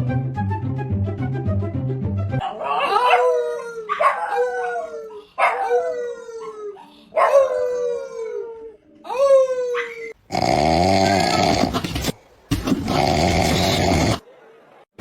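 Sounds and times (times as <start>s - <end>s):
dog howling: 2.4s - 10.2s.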